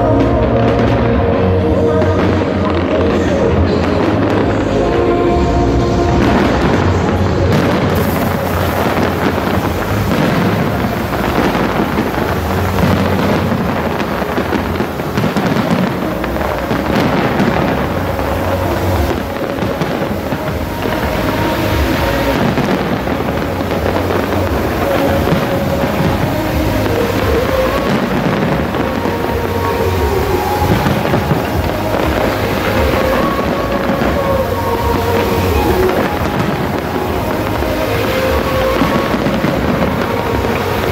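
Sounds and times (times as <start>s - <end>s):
fireworks bangs and crackles: 0.0s - 40.9s
music playing: 0.0s - 40.9s.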